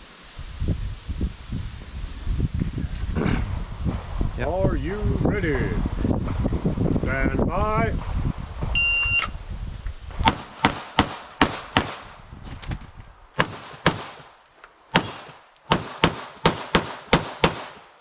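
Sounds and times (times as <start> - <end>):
shot timer beep: 8.8 - 9.3
pistol shots: 10.2 - 12.1, 13.4 - 14.3, 14.9 - 18.0.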